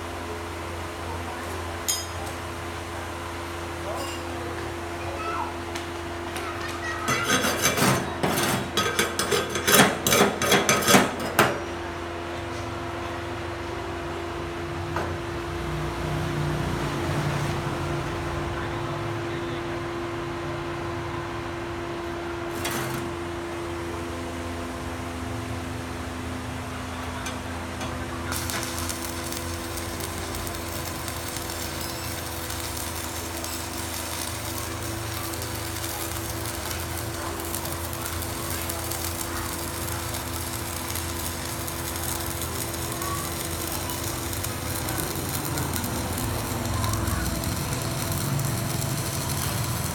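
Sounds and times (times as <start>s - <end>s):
hand tool rasping metal: 7.1s - 11.1s
welding arc crackling: 27.9s - 49.9s
machine hum: 28.0s - 49.9s.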